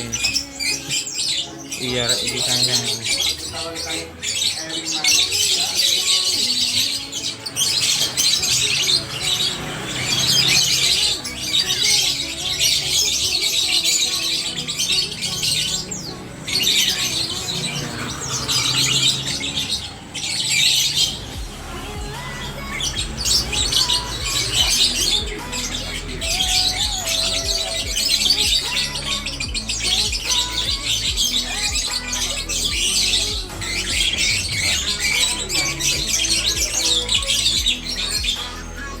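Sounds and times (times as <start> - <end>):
songbirds chirping and squawking: 0.0 - 39.0
music with bass beat: 21.0 - 39.0.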